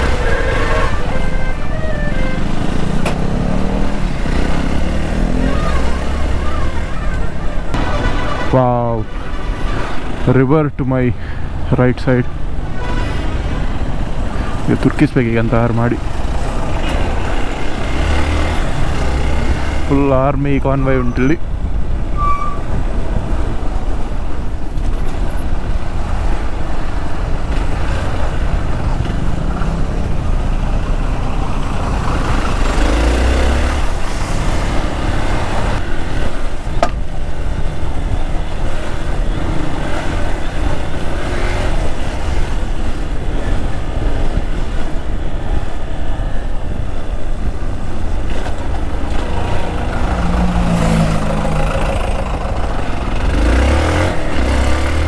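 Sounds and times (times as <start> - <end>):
motorcycle engine running: 0.0 - 10.1, 25.5 - 55.0
truck engines: 0.0 - 55.0.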